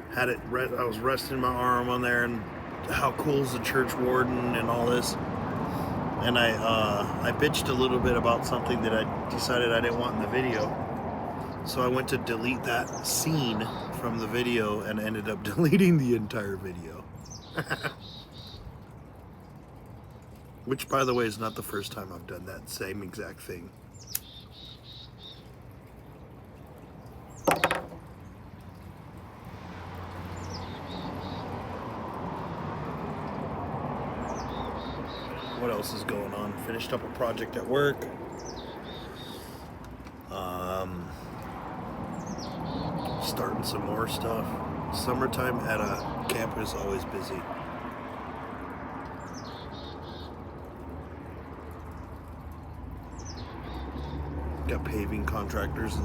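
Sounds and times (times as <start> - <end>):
songbird singing: 0.0 - 19.9, 20.5 - 28.8, 30.3 - 31.7, 34.2 - 47.6, 49.0 - 56.0
songbird calling: 12.7 - 15.0, 17.2 - 18.7, 23.9 - 25.5, 34.2 - 39.7, 49.2 - 50.4.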